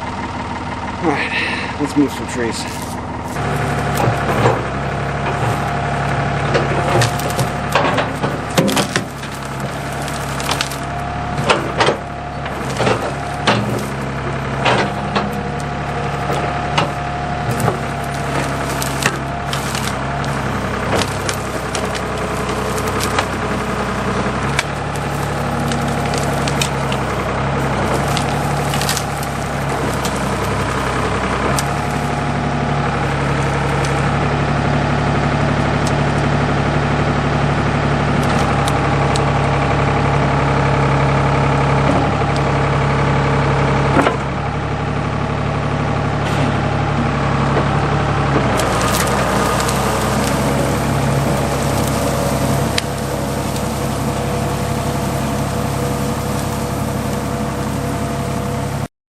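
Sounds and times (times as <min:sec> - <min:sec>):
backhoe diesel engine running: 0:00.0 - 0:58.9
knocks and clanks: 0:02.6 - 0:34.2.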